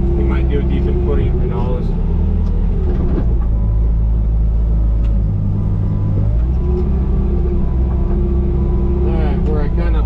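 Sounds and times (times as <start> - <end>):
diesel engine rumbling: 0.0 - 10.0.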